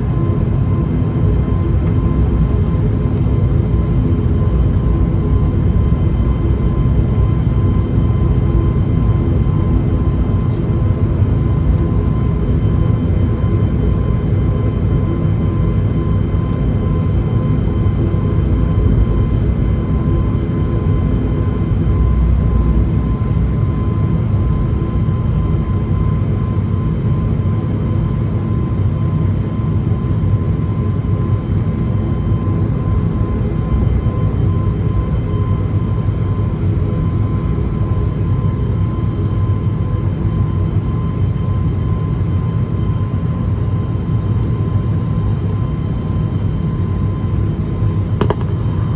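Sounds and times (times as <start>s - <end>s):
aircraft cabin low rumble: 0.0s - 48.9s
high whine: 43.5s - 48.9s.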